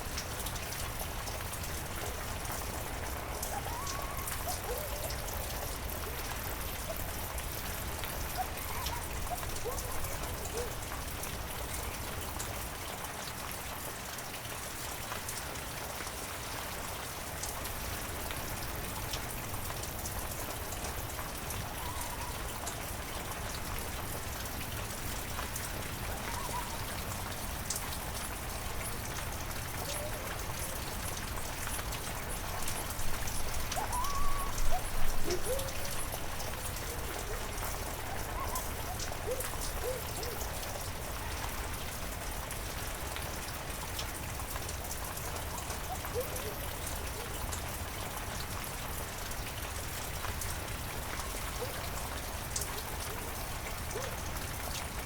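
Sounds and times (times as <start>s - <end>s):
short wavering calls: 33.8s - 36.1s.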